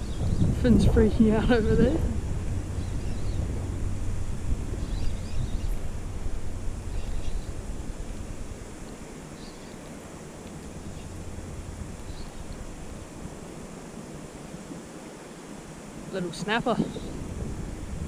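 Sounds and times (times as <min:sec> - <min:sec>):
choppy water: 0:00.0 - 0:18.0
wind buffeting microphone: 0:00.0 - 0:18.0.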